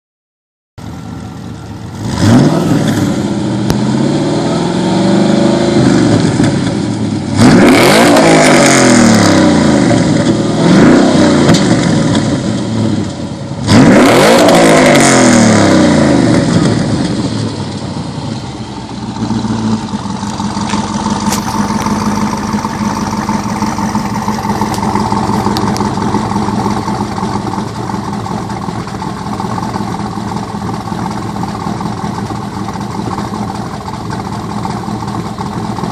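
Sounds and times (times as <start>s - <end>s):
engine exhaust revving and idling: 0.8s - 35.9s.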